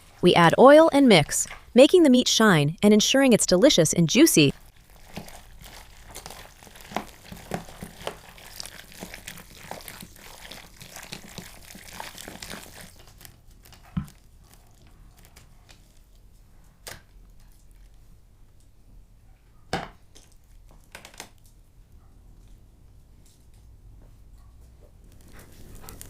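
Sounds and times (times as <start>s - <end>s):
hands mixing wet meat: 3.6s - 16.0s.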